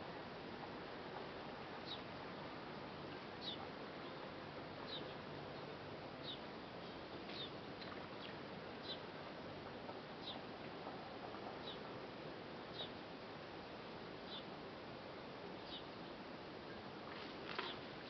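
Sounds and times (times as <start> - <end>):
faint hiss: 0.0 - 18.0
bird chirping: 1.8 - 2.0, 3.4 - 9.1, 10.2 - 10.4, 11.6 - 11.9, 12.7 - 13.0, 14.3 - 14.5, 15.6 - 16.8.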